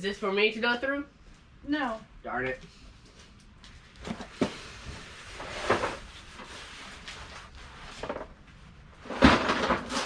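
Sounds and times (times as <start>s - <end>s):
items knocking and clattering: 9.0s - 10.0s.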